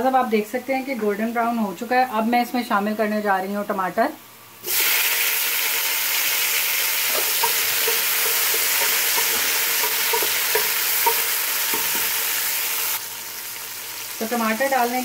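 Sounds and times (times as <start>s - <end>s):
vegetables sizzling in hot oil: 4.5s - 15.0s
wooden spoon scraping a pot: 7.1s - 12.2s.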